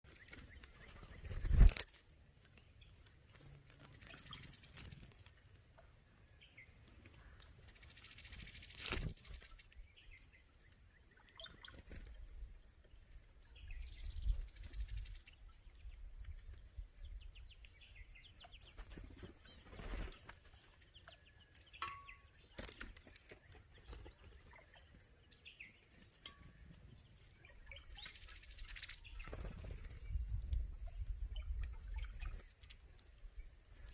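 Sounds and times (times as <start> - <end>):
wing flutters: 0.1 - 2.0, 8.1 - 9.6, 18.6 - 20.8, 28.6 - 30.1.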